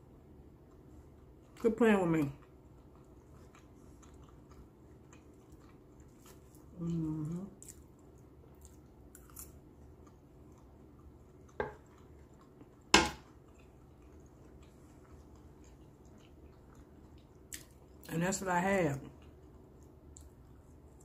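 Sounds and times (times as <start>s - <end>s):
quiet chewing: 0.2s - 21.0s
fork knocking on wooden board: 11.6s - 11.8s, 13.0s - 13.2s.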